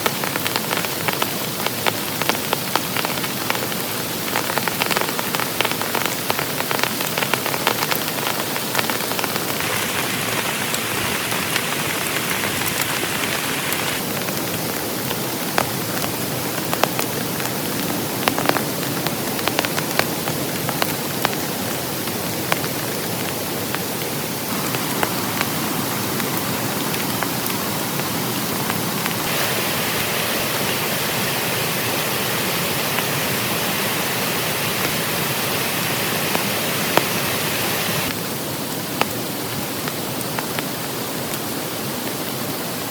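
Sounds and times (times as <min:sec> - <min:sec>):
heavy rain falling: 0:00.0 - 0:42.9.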